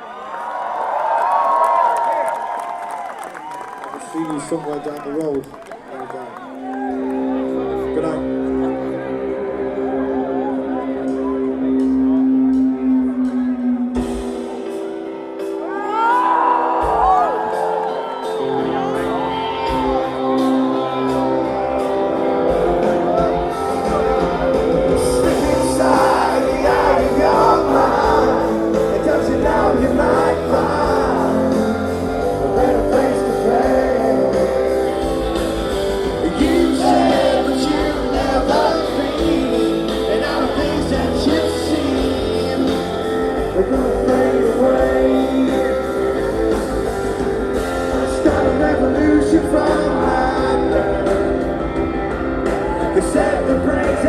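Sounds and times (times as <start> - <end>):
live rock band playing: 6.5 - 54.0
person singing: 8.8 - 46.9, 47.6 - 51.9, 52.5 - 54.0.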